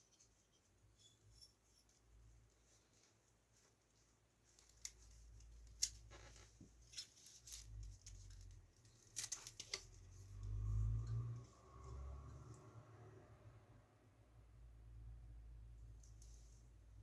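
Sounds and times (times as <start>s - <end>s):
sharp clicks of small parts: 7.4s - 9.9s.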